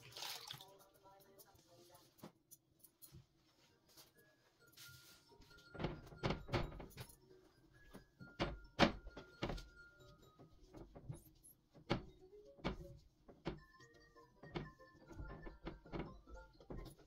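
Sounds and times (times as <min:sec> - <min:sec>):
soft background music: 0:00.0 - 0:17.0
household items knocking and thudding: 0:05.6 - 0:07.2, 0:08.2 - 0:17.0.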